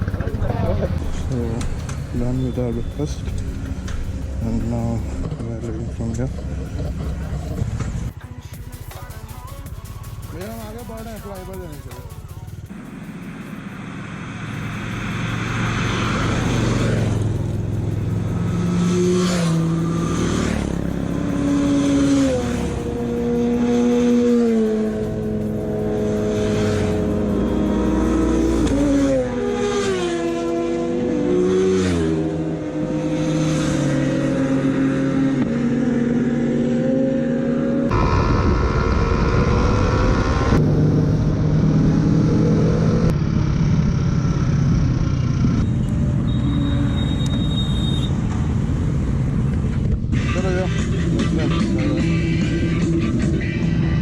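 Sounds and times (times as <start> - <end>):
wind and road noise: 0.0 - 8.2, 12.6 - 54.0
motorcycle engine accelerating: 0.0 - 8.5, 9.7 - 54.0.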